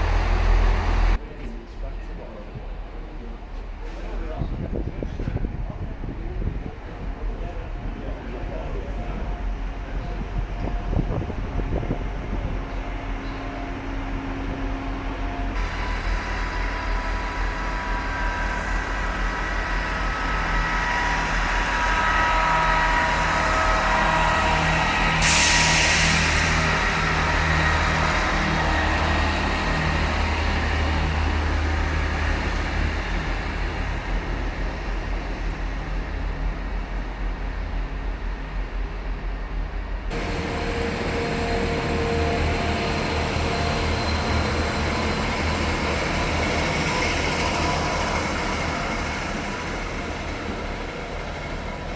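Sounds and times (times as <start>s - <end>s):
train engine rumble: 0.0s - 51.9s
loud hiss of air: 24.4s - 28.9s.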